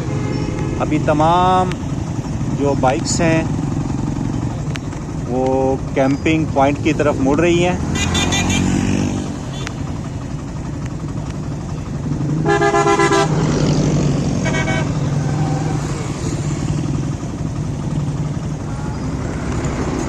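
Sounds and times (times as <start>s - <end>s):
motorcycle engines humming: 0.0s - 20.0s
horn honking: 7.8s - 9.8s, 12.4s - 13.5s, 14.4s - 15.8s.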